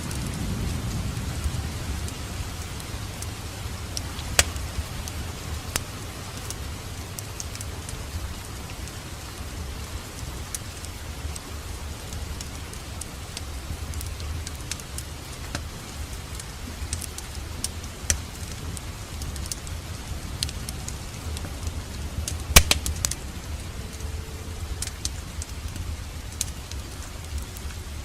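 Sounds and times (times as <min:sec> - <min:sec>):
fire crackles and pops: 0:00.0 - 0:28.0
wood fire rumbling: 0:00.0 - 0:28.0.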